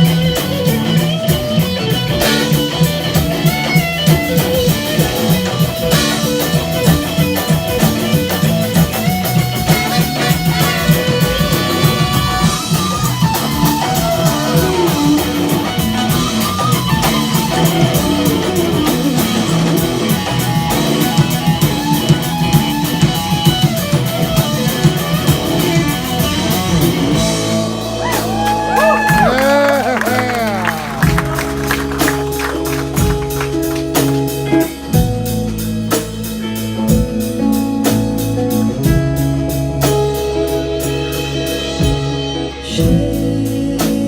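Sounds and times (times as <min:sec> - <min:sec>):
bass guitar: 0:00.0 - 0:44.0
drum kit: 0:00.0 - 0:44.0
lead electric guitar: 0:00.0 - 0:44.0.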